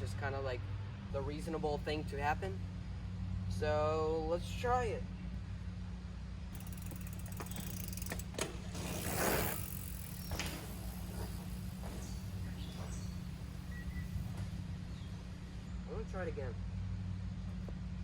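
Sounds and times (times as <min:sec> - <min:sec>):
bike freewheel ratcheting: 0:06.5 - 0:14.4.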